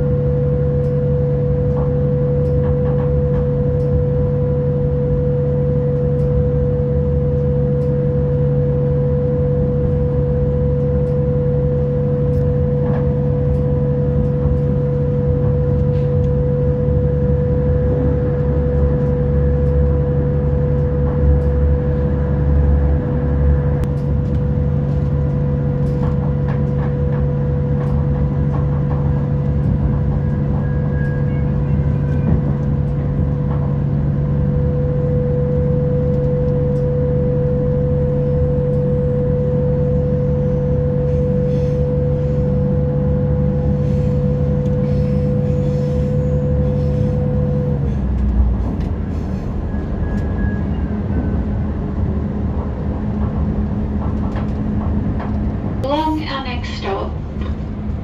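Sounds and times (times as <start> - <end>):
train running gear rumble: 0.0 - 58.0.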